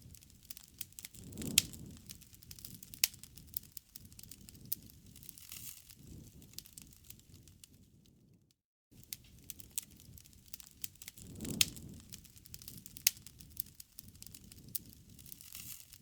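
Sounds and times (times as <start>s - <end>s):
campfire crackling and popping: 0.0s - 8.3s, 9.0s - 16.0s
low rumble of burning wood: 0.0s - 16.0s.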